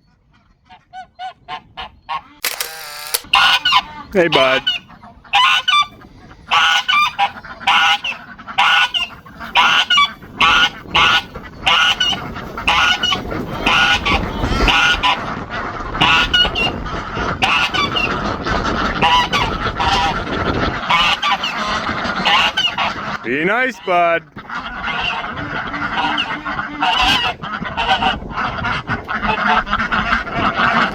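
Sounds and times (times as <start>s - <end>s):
geese honking: 3.4s - 15.2s, 18.9s - 23.2s, 23.8s - 30.9s.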